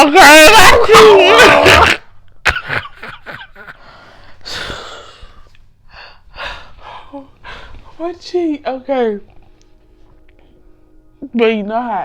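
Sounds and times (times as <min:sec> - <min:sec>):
woman laughing breathlessly: 0:02.5 - 0:05.0.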